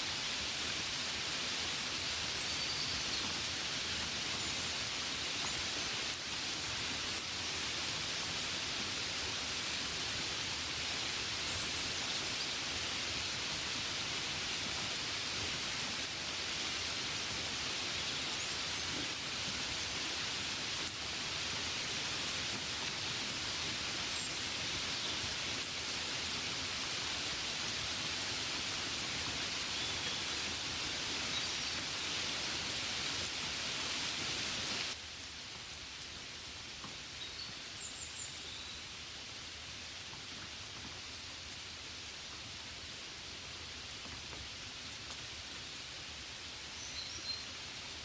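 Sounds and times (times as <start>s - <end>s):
rain on a window pane: 0.1s - 48.0s.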